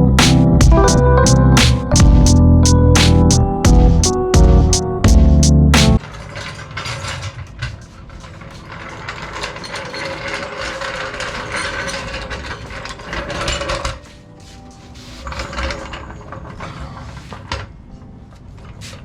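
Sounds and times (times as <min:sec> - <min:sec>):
background music: 0:00.0 - 0:06.0, 0:13.2 - 0:16.1.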